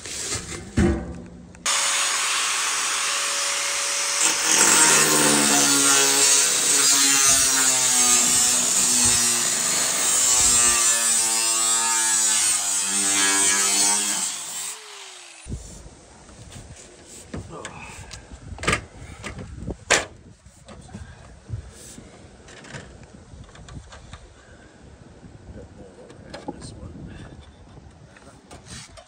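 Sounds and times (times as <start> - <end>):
power saw cutting: 1.6 - 15.5.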